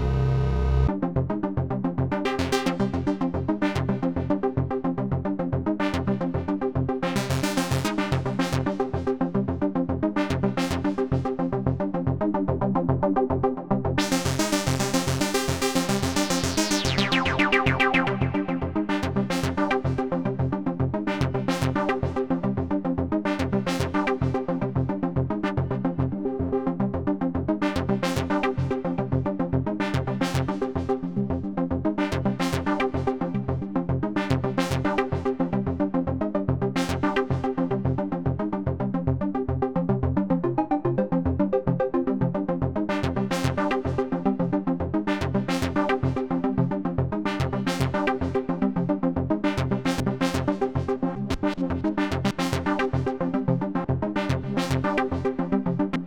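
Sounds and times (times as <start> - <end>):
synthesizer bass pulses: 0.0 - 0.9
synthesizer held chords: 0.0 - 0.9.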